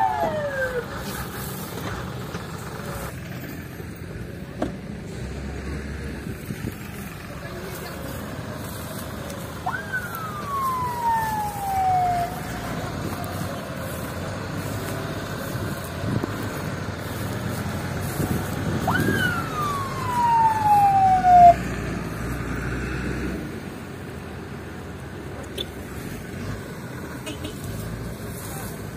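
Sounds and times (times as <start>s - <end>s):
emergency siren whoops: 0.0s - 1.2s, 9.6s - 14.8s, 18.7s - 21.7s
vehicle engine rumble: 0.0s - 28.9s.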